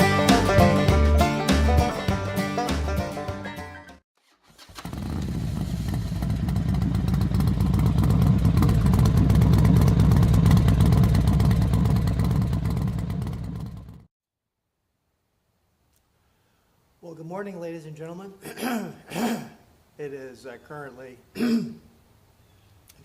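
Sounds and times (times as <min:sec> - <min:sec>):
motorcycle engine running: 0:04.6 - 0:14.1.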